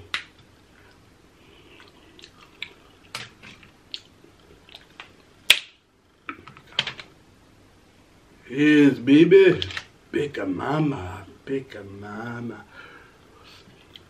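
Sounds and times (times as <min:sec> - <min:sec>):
chewing clicks and smacks: 0:01.8 - 0:03.2, 0:03.9 - 0:05.1.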